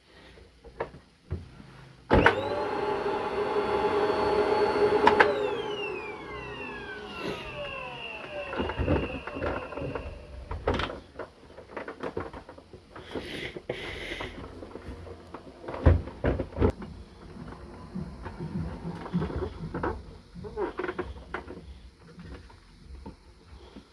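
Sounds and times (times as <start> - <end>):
vacuum cleaner winding down: 2.1 - 11.0, 15.4 - 21.2.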